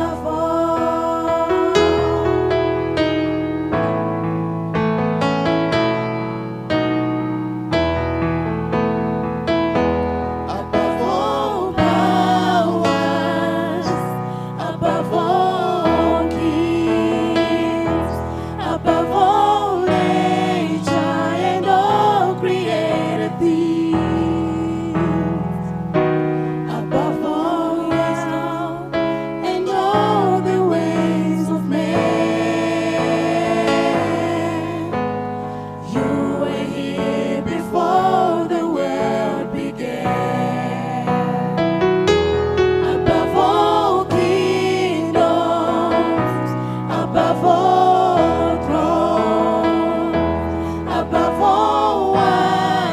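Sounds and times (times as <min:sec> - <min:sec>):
choir singing slow melody: 0:00.0 - 0:03.9, 0:10.2 - 0:52.9
bass: 0:00.0 - 0:52.9
keyboard: 0:00.0 - 0:52.9.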